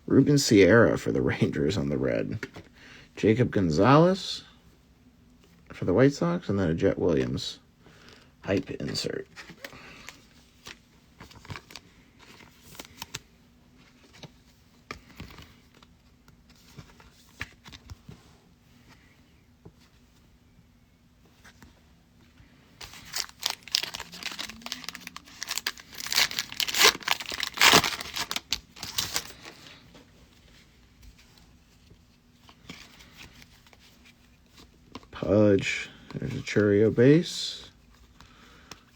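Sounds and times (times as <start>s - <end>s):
foil wrapper crinkling and tearing: 22.8s - 29.6s
foil wrapper rustling: 22.8s - 29.8s.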